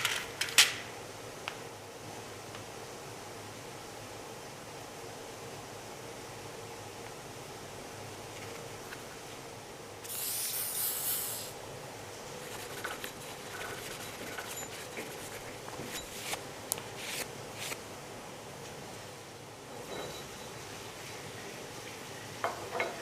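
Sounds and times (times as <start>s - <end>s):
steady background hiss: 0.0s - 23.0s
burst of hissing: 10.0s - 11.6s.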